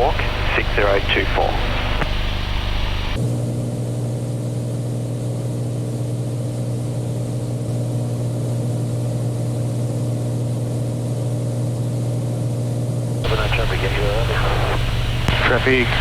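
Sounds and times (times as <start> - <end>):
aircraft engine and propeller hum: 0.0 - 3.2, 13.2 - 16.0.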